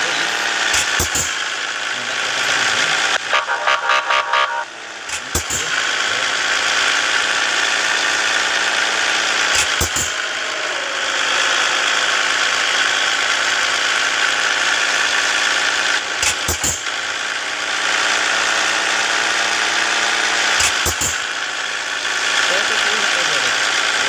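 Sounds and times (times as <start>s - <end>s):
diesel truck engine droning: 0.0s - 24.0s.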